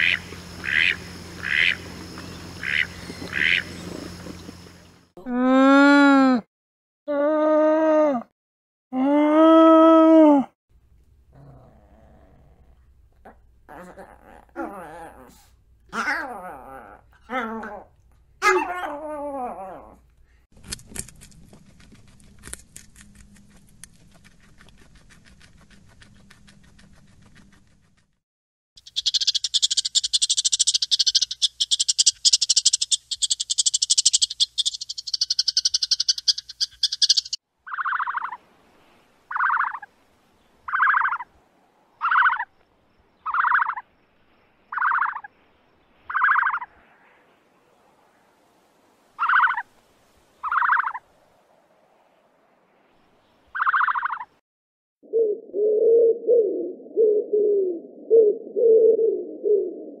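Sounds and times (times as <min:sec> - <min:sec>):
small dog calls: 0:15.9 - 0:19.9
squirrel chattering: 0:28.8 - 0:38.4, 0:43.3 - 0:43.8.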